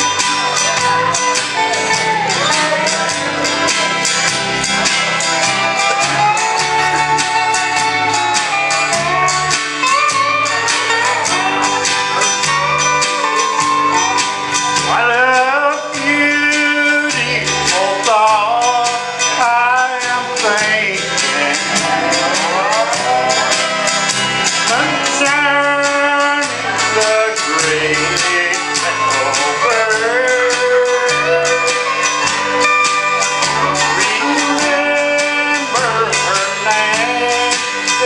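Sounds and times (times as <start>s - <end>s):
country band playing: 0.0s - 38.0s
lead instrument sliding notes: 27.1s - 37.3s.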